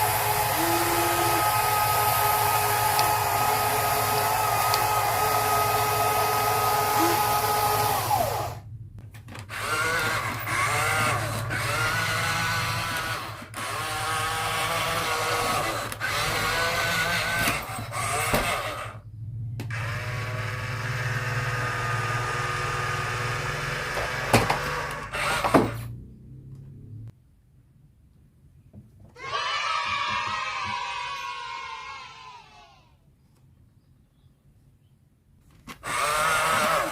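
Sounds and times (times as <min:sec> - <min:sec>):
small gear motors whining: 0:00.0 - 0:08.7, 0:09.4 - 0:26.9, 0:35.7 - 0:36.9.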